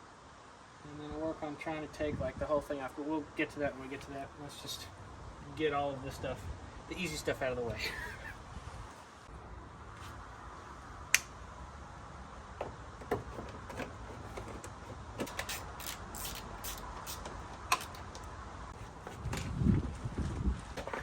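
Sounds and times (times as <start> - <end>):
hand tools clicking on engine: 12.6 - 18.3.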